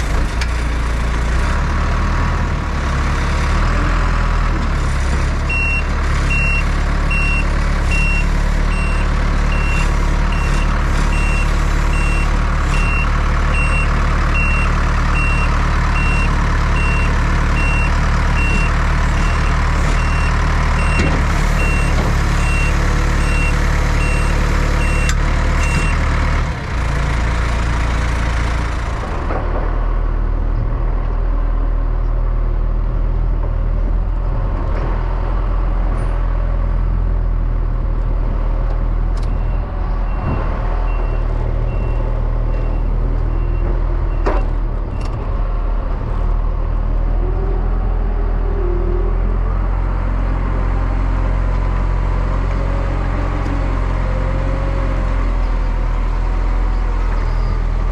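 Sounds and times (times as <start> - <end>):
diesel machinery running: 0.0 - 57.9
reversing alarm beeping: 5.5 - 26.0.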